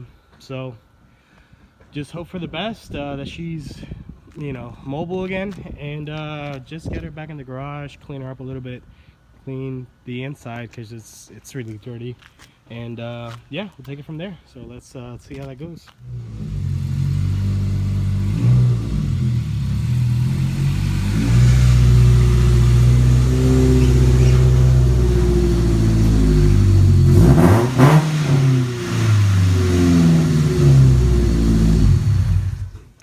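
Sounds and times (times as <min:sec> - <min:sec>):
car engine revving: 0:16.0 - 0:32.9.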